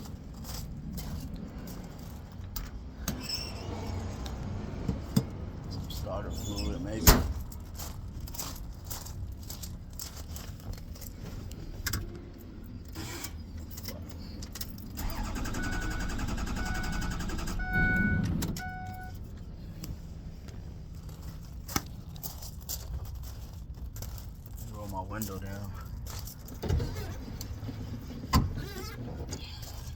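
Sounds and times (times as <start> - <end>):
dashboard warning chime beeping: 15.1 - 19.2.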